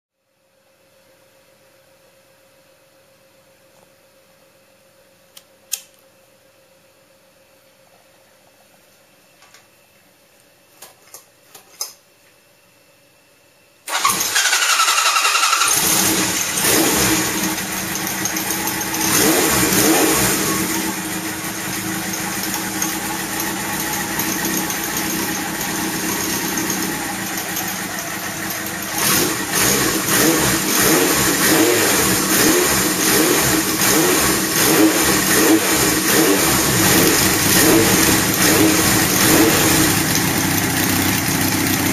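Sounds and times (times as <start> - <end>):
motorcycle engine starting and revving: 13.9 - 41.9.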